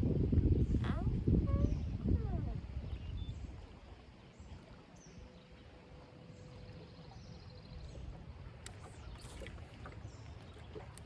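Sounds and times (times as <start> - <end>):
wind rumble on microphone: 0.0 - 5.4.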